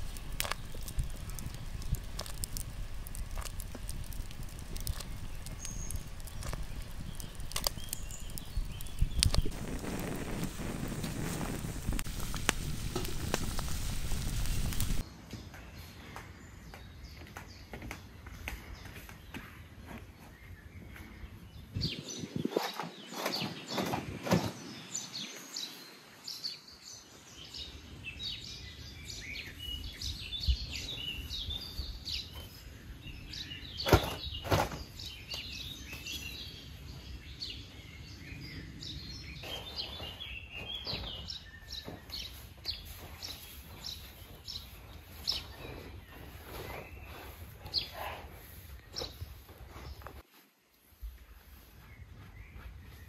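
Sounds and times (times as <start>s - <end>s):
birds singing and chirping: 0.0s - 10.5s, 12.2s - 50.2s
sharp snaps and knocks: 0.0s - 15.0s.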